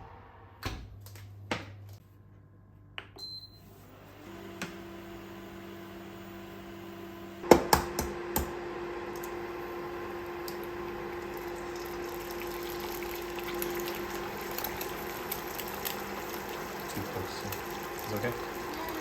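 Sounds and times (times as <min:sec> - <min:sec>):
water running from a tap: 0:10.4 - 0:19.0.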